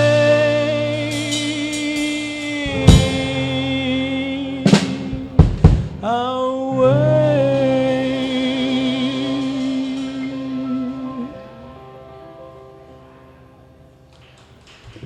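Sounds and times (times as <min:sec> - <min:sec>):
drum kit hits: 0:00.0 - 0:06.2
blues band sustained chord: 0:00.0 - 0:14.1.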